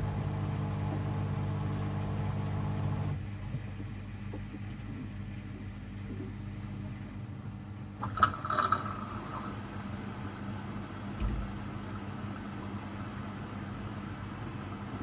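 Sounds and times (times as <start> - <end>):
washing machine hum: 0.0 - 15.0.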